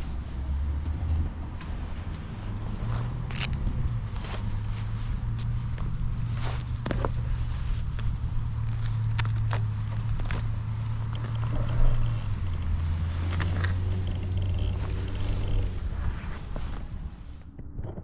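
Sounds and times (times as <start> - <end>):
motorcycle engine running: 3.3 - 16.8.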